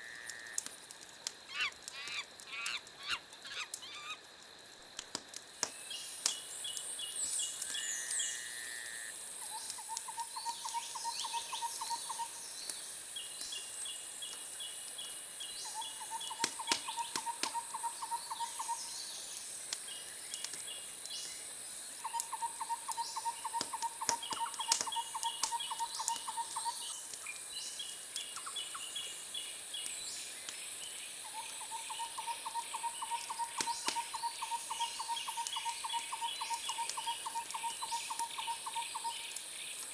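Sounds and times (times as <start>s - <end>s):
steady high hiss: 0.0s - 39.9s
wood fire crackling: 0.2s - 8.2s, 11.7s - 31.2s.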